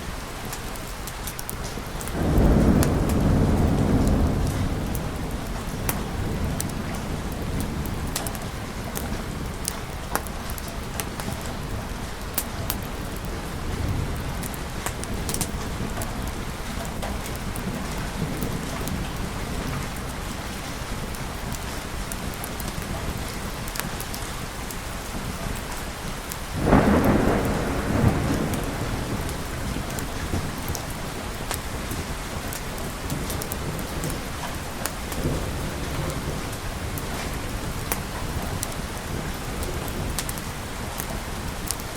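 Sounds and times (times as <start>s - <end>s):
heavy rain: 0.0s - 41.9s
rolling thunder: 1.9s - 21.6s, 26.4s - 41.9s
loud thunderclap: 2.0s - 9.7s, 26.5s - 41.9s.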